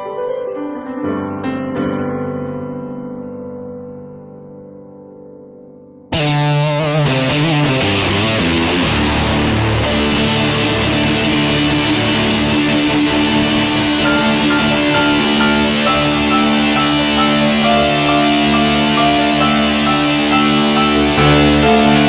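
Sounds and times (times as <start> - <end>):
distorted electric guitar voice: 6.1 - 22.0
keyboard piano tone: 9.9 - 22.0.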